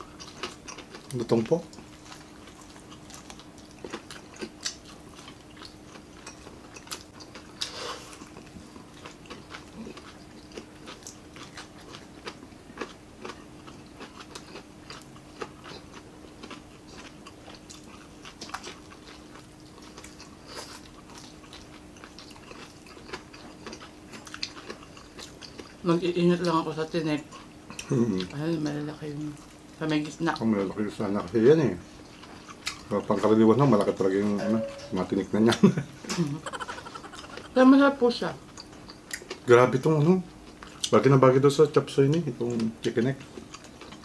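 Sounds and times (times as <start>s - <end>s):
people chewing crispy food: 0.0s - 34.3s, 35.1s - 44.0s
faint hum: 30.9s - 44.0s.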